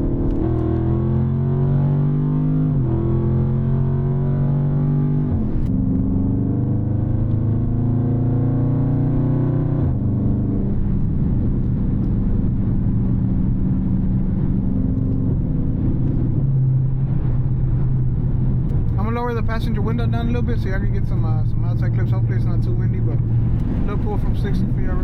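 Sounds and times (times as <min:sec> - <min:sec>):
car engine accelerating through gears: 0:00.0 - 0:18.8.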